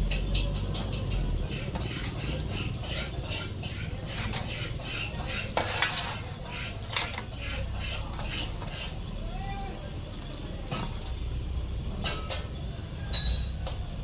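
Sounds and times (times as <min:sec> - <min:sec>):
hand tools clinking on metal: 0:13.1 - 0:13.8.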